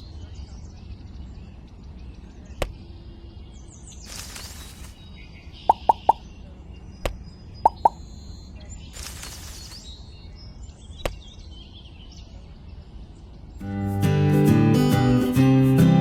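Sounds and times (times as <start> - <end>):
faint high chirps: 5.6 - 9.7
short sharp plops: 5.7 - 6.2, 7.7 - 8.0.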